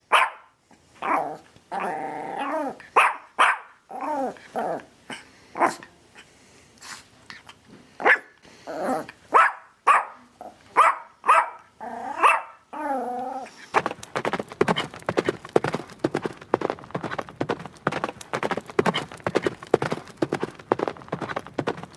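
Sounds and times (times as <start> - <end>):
dog barking: 0.0 - 1.4, 2.9 - 3.8, 5.1 - 5.9, 8.0 - 8.4, 9.3 - 12.7
horse hooves clattering: 13.7 - 21.9.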